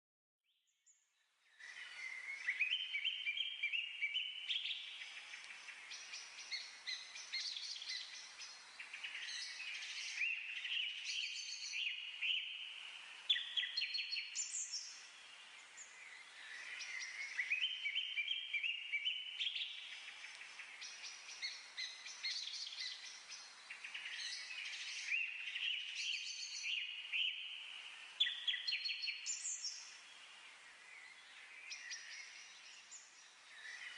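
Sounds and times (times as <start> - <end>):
birds chirping and singing: 1.5 - 33.9.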